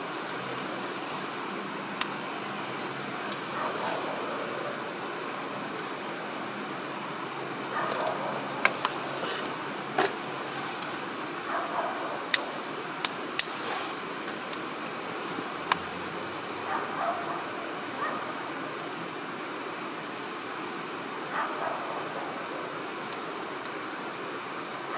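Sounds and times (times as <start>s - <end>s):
wood fire crackling: 0.0s - 24.9s
firewood popping and snapping: 7.8s - 11.0s, 12.3s - 16.0s.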